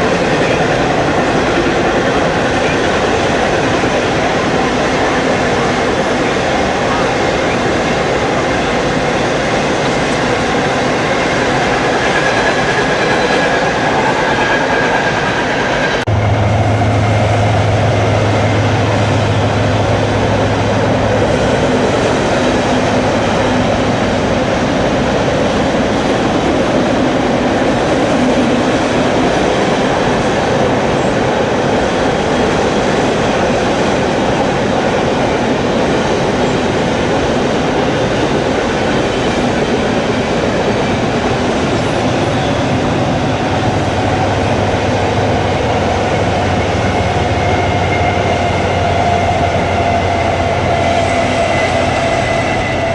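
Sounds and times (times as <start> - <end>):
train rumbling and rattling: 0.0 - 52.9
high squeal: 11.1 - 18.8, 46.6 - 52.9.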